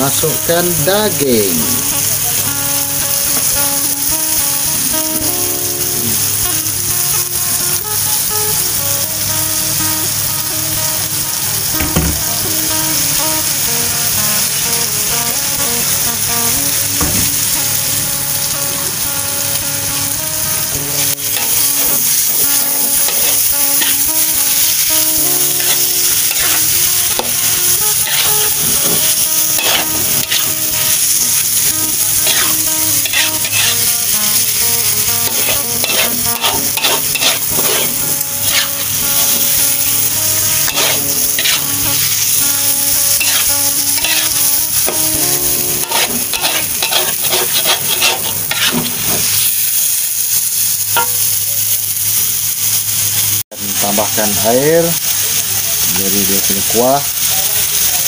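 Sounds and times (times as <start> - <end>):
meat sizzling in a wok: 0.0 - 58.0
metal spatula scraping a wok: 21.3 - 39.8, 40.4 - 49.5.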